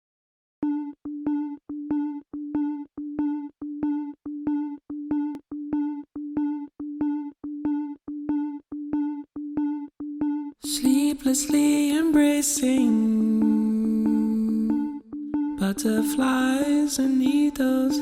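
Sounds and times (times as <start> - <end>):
synthesizer note pulsing: 12.2 - 18.0.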